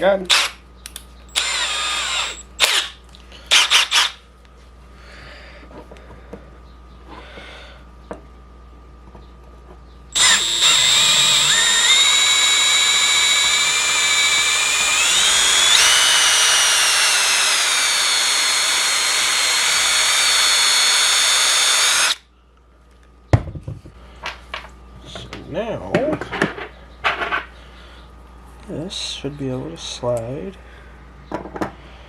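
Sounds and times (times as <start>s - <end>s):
power drill whining: 0.3s - 0.5s, 1.3s - 4.2s, 10.2s - 22.2s.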